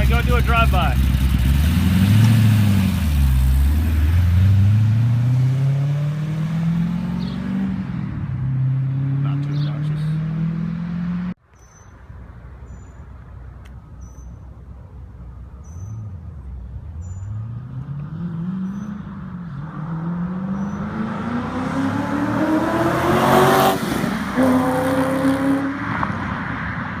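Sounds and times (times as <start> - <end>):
sports car driving by accelerating: 1.0 - 11.4, 17.0 - 26.6.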